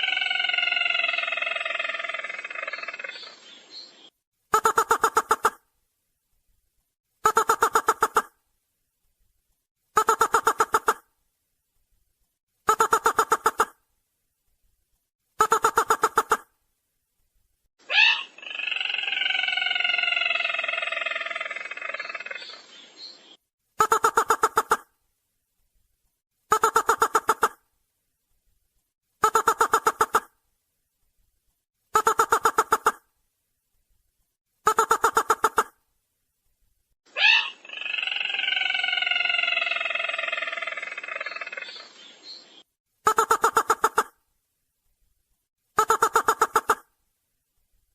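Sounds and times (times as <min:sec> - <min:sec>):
bird trilled call: 0:17.9 - 0:23.4, 0:37.2 - 0:42.6.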